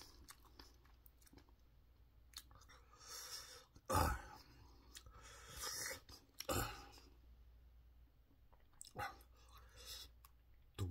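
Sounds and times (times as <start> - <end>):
faint chewing clicks: 0.0 - 1.7, 2.3 - 2.8.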